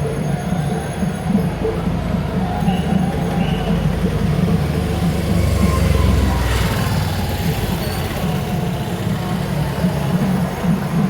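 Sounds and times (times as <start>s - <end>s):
crowd din: 0.0s - 11.0s
loud festival drumming: 0.0s - 11.0s.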